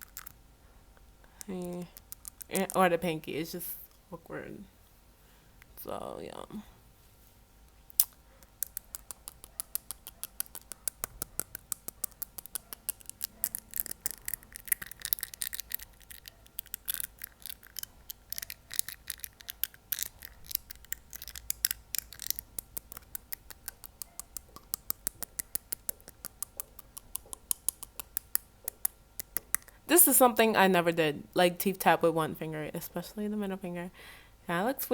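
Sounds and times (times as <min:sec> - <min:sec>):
fingernail tapping on teeth: 0:08.0 - 0:29.8.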